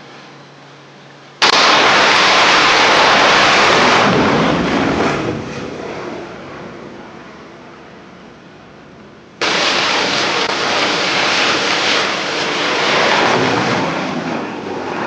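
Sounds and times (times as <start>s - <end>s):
loud blast-like roar: 1.4s - 6.8s, 9.4s - 15.0s.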